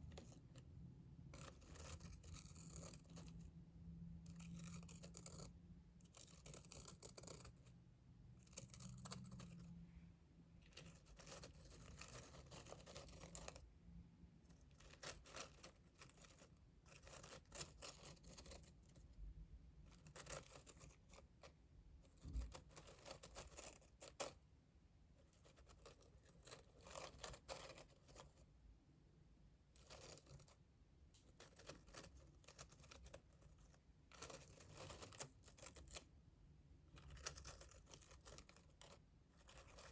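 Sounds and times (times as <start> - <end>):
soft scratching and brushing: 1.3 - 3.6, 8.4 - 13.7, 29.7 - 36.1, 36.9 - 39.9.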